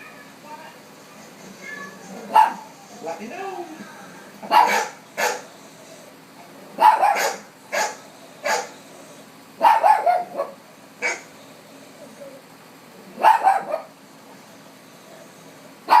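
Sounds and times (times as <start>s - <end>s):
dog barking: 2.3s - 2.7s, 4.4s - 5.6s, 6.7s - 8.8s, 9.6s - 11.3s, 13.1s - 14.0s.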